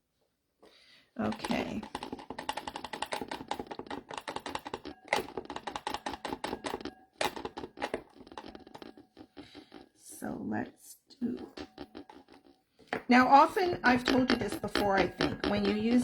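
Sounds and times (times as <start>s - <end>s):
typing on a computer keyboard: 1.3s - 9.8s.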